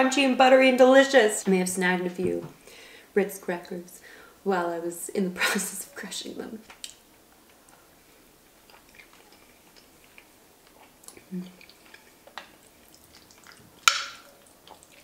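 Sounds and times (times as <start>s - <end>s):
person chewing crunchy food: 7.4s - 15.0s
person humming: 11.2s - 11.6s.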